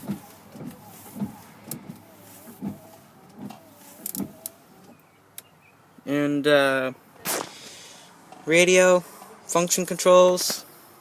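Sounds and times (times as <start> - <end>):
windshield wipers knocking: 0.0 - 5.1
wiper motor whine: 0.0 - 5.7.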